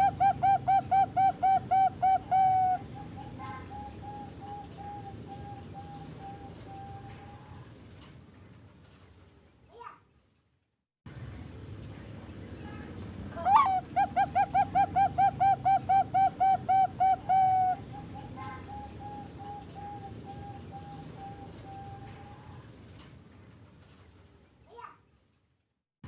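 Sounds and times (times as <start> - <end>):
dove cooing: 0.0 - 7.5, 13.4 - 22.7.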